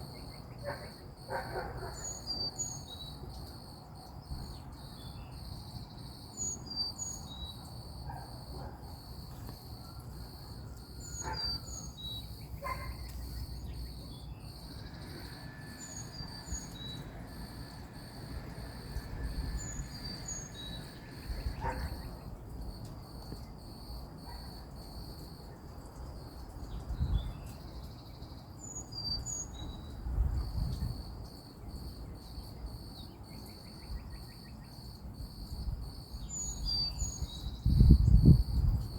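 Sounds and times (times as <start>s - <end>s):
insects trilling: 0.0s - 38.9s
low wind rumble: 14.7s - 22.4s, 37.5s - 38.9s.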